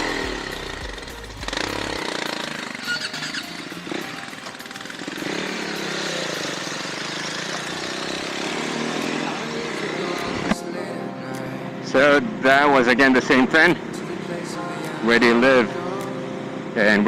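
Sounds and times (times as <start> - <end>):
motorcycle engine riding: 0.0 - 10.6.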